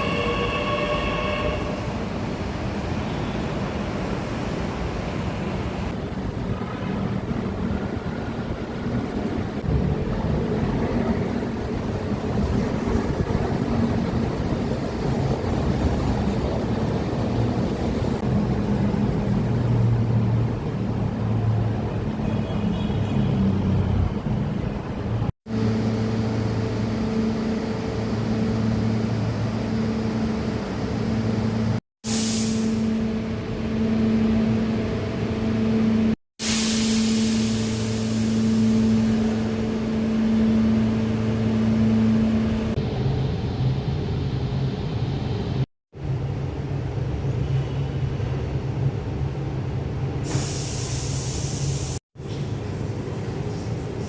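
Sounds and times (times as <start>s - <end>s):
train rumble: 0.0s - 22.3s.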